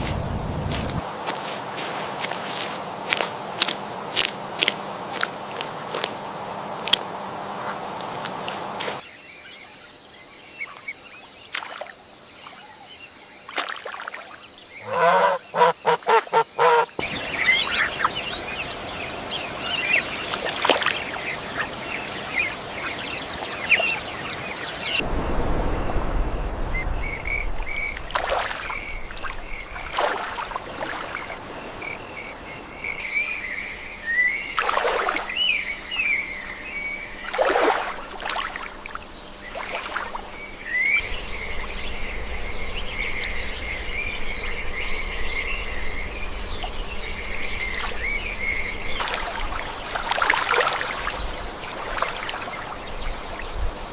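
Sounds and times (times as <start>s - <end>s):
bird calls and chirps: 9.0s - 25.0s, 25.7s - 53.8s
low rumble: 25.0s - 30.0s.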